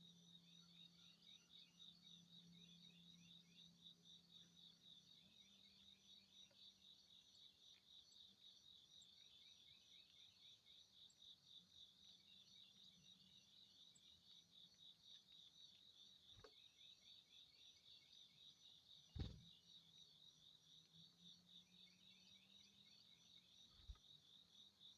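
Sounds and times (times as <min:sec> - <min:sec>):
insects chirping: 0:00.0 - 0:24.9
dull thump: 0:19.1 - 0:19.4.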